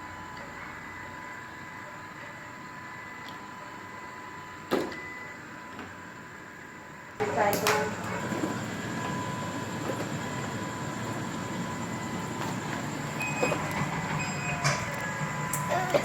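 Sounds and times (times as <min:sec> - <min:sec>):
robot vacuum cleaner humming: 0:07.2 - 0:16.0.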